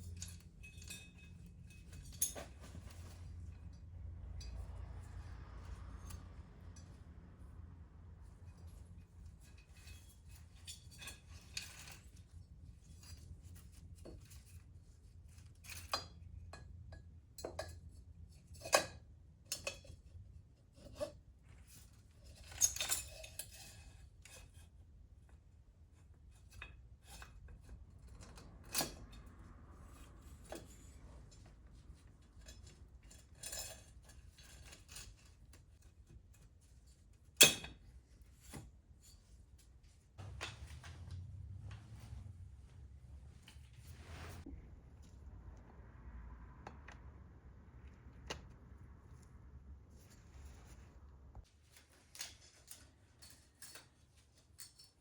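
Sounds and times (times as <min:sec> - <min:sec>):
metal scrape: 0:43.4 - 0:44.7.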